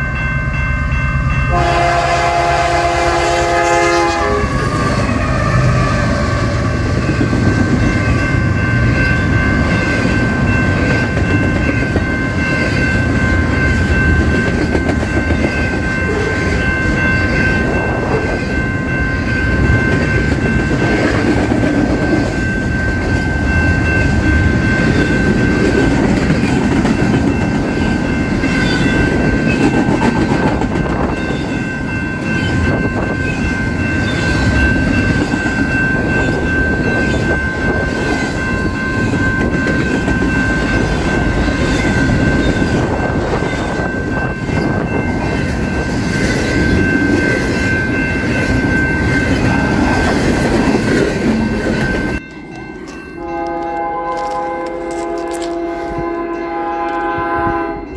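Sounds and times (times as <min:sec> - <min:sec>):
locomotive air horn chord: 0:01.5 - 0:06.8, 0:53.2 - 0:57.9
train wheels clickety-clack: 0:09.5 - 0:18.6, 0:19.4 - 0:56.0.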